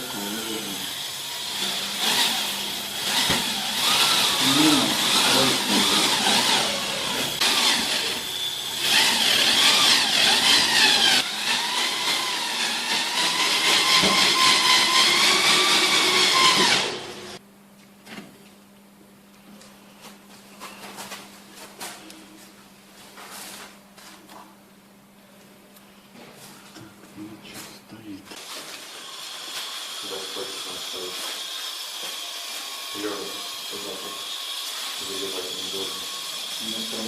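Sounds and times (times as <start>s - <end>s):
electric power tool motor running: 0.0s - 17.4s.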